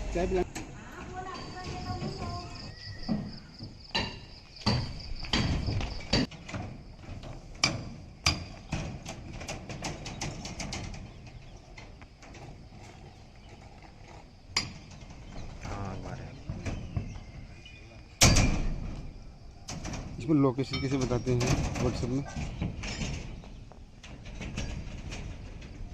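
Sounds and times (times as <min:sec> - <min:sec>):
tools knocking and clanking: 0:00.4 - 0:12.6, 0:19.6 - 0:25.9.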